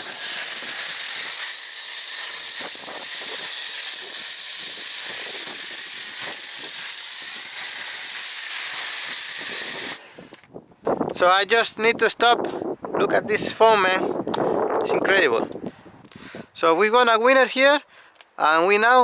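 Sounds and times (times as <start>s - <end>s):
pressure washer foam spraying: 0.0s - 10.3s.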